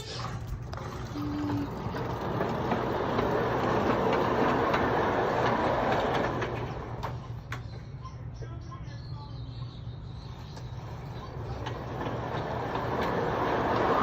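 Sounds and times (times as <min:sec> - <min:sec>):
wheels clicking over rail joints: 0:00.3 - 0:07.7, 0:10.4 - 0:14.0
train rumbling past: 0:00.8 - 0:07.4, 0:10.7 - 0:14.0.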